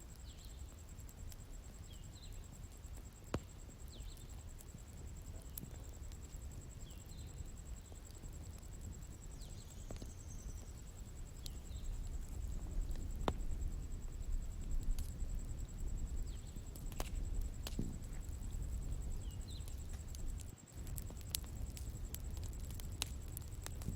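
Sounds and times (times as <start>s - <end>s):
bonfire crackling: 0.0s - 23.9s
small bird chirping: 6.8s - 23.6s.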